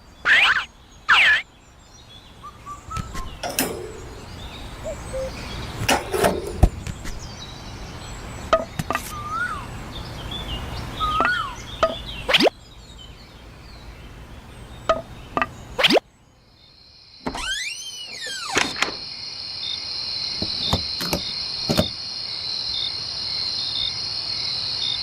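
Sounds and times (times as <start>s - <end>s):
birds chirping: 0.0s - 22.0s
low steady hum: 0.8s - 17.0s
sharp clicks and knocks: 3.0s - 4.4s, 5.8s - 7.2s, 20.4s - 22.0s.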